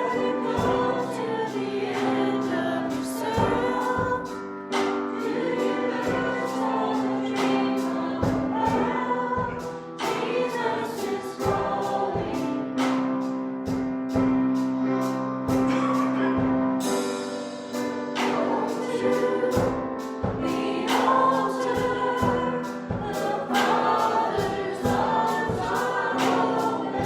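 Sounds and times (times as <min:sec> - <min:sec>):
band accompaniment: 0:00.0 - 0:27.0
people singing worship song: 0:00.0 - 0:27.0.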